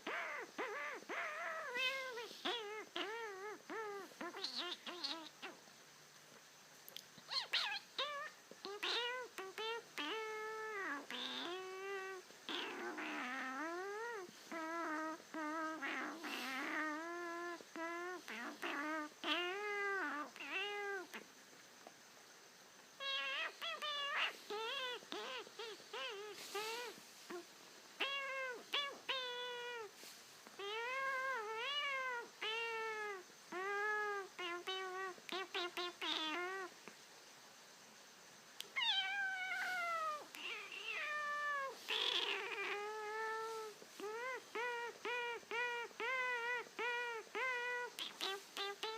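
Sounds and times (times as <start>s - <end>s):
animal meow-like cries: 7.3s - 21.2s, 38.7s - 48.9s.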